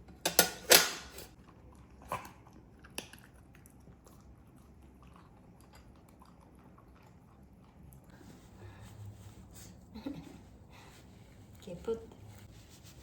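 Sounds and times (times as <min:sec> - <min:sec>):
faint chewing: 0:01.3 - 0:08.9.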